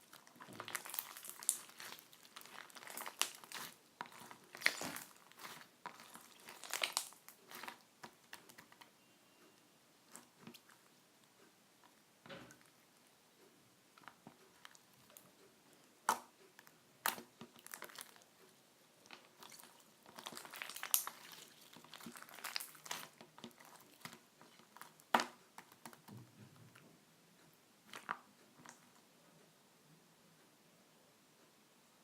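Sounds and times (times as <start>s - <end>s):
crunching and crinkling: 0.0s - 8.9s, 17.0s - 18.4s, 19.0s - 26.3s.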